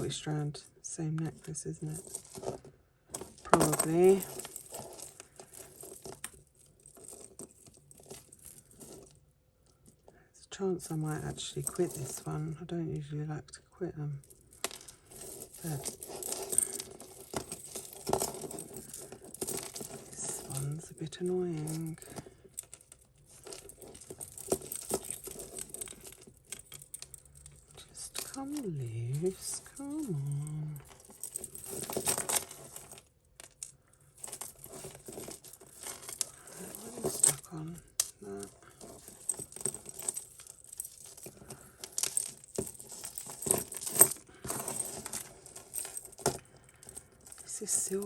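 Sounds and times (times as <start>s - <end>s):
necklaces clicking and rustling: 0.0s - 0.4s, 1.1s - 10.2s, 10.8s - 13.1s, 14.1s - 48.0s.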